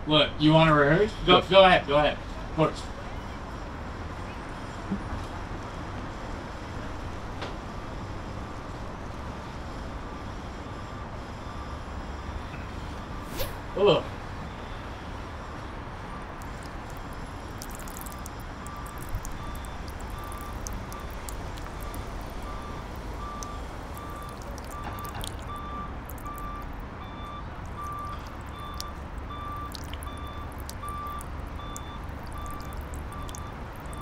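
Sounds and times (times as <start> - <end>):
low rumble of traffic: 0.0 - 34.0
reversing alarm beeping: 7.6 - 34.0.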